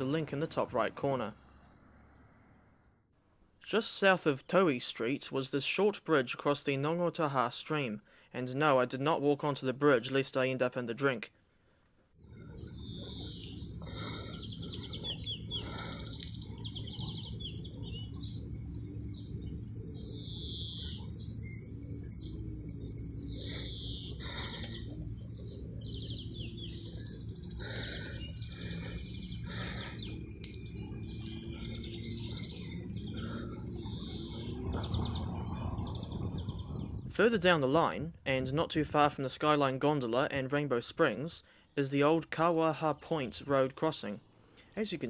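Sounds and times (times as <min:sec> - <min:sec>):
insects chirping chorus: 0:00.0 - 0:39.6
birds calling: 0:12.2 - 0:37.2.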